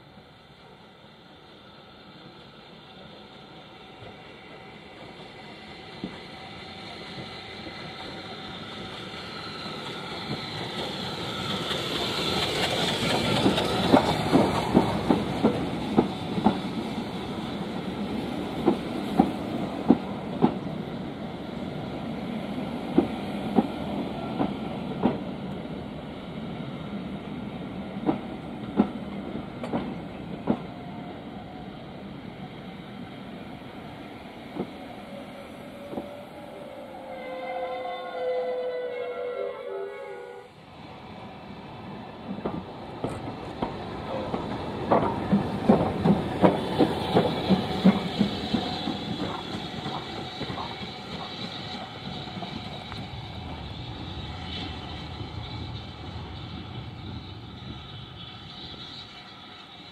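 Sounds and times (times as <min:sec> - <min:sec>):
steam train approaching: 0:00.0 - 0:59.9.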